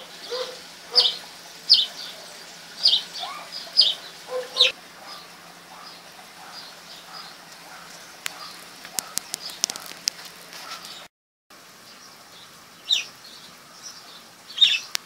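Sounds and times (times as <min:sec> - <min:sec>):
small birds chirping: 0:00.0 - 0:11.1, 0:11.8 - 0:15.0
sharp clicks: 0:08.2 - 0:10.2.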